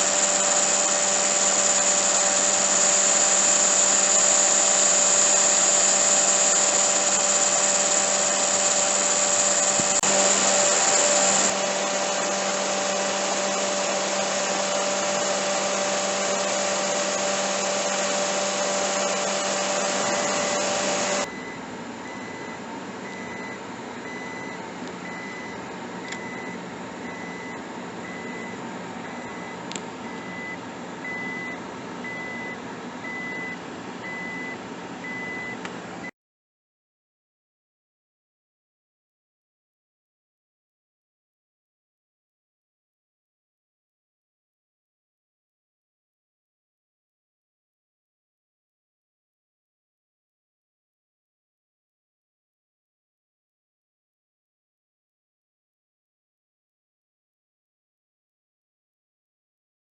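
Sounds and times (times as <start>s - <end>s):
machine whirring and humming: 0.0s - 36.1s
short high beep: 18.9s - 35.6s.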